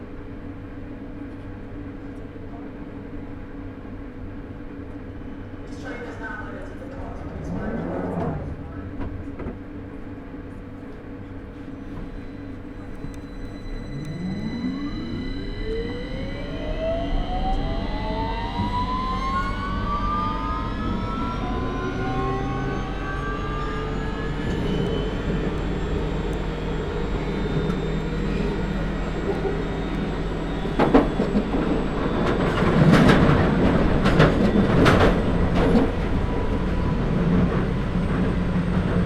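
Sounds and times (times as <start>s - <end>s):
train traction motors whining: 4.9s - 39.0s
train motor hum: 5.7s - 39.0s.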